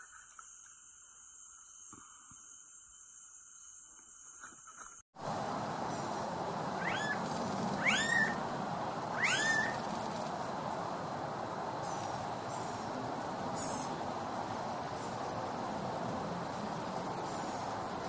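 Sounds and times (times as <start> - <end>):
background hiss: 0.0 - 18.0
animal calls rising and falling: 5.5 - 10.9.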